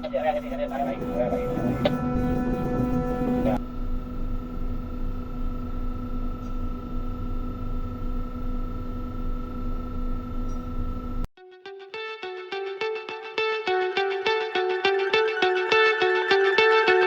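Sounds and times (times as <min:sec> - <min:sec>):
heavy machinery humming: 0:00.0 - 0:08.2.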